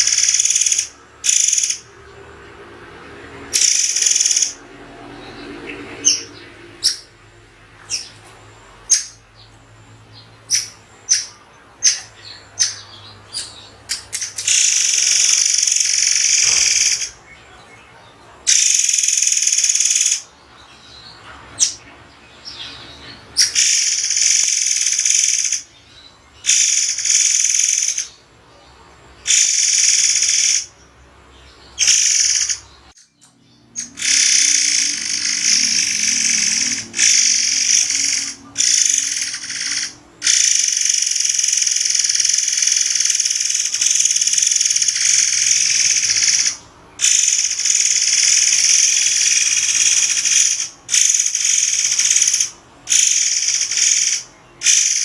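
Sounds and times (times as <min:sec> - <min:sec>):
bird shrill high-pitched calls: 0:10.5 - 0:17.2, 0:33.8 - 0:55.0.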